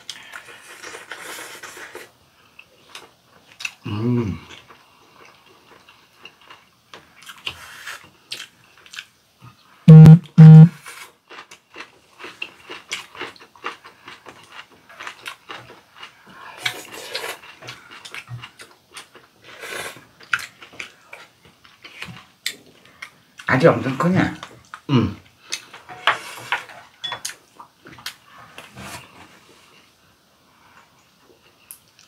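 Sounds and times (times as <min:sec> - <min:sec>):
chewing and mouth smacks: 0:08.3 - 0:09.1, 0:20.2 - 0:23.5
loud steady-pitch buzzes: 0:09.9 - 0:10.8.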